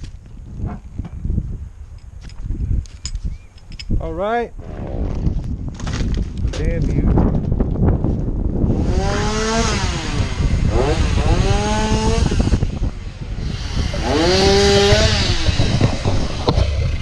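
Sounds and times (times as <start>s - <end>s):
chainsaw revving: 8.7s - 17.0s.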